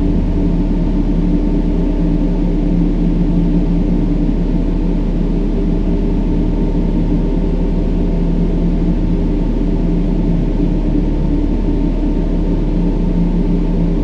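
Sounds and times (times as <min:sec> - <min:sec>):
deep rushing brown noise: 0:00.0 - 0:03.9
steady low tones: 0:00.0 - 0:05.2.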